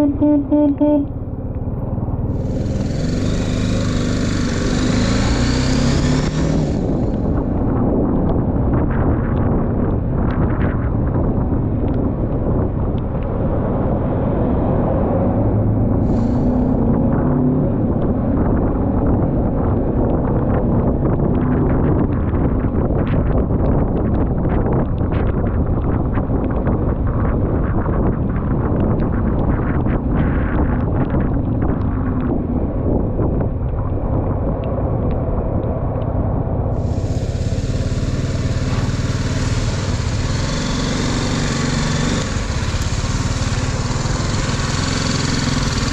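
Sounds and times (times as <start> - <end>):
wind buffeting microphone: 0.0 - 45.9
sharp ticks: 34.5 - 45.9.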